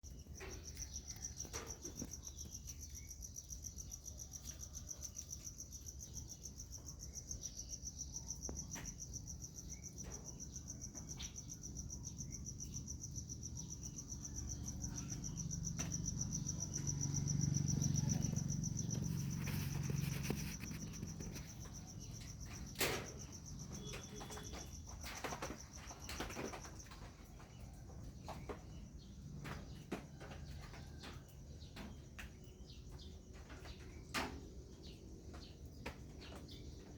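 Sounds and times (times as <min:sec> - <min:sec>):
high-pitched insect trill: 0:00.1 - 0:27.1.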